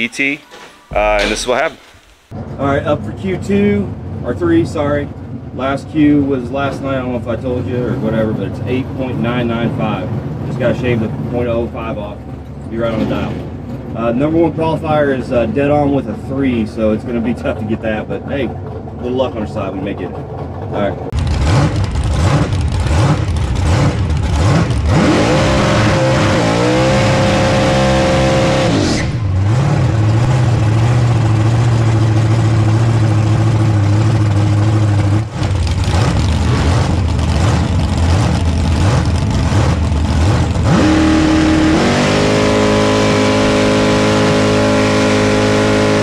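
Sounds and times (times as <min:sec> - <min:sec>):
supercharged engine revving: 0:20.8 - 0:46.0.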